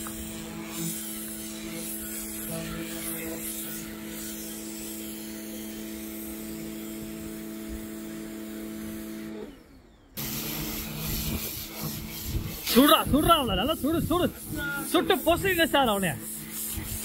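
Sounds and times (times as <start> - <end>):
pressure washer motor humming: 0.0 - 17.0
water spray hissing: 10.2 - 17.0.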